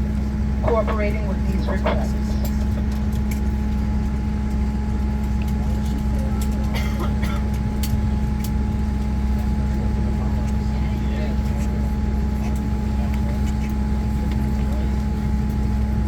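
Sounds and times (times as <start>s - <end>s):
aircraft cabin hum and whine: 0.0s - 16.0s
distant talk: 8.8s - 15.9s.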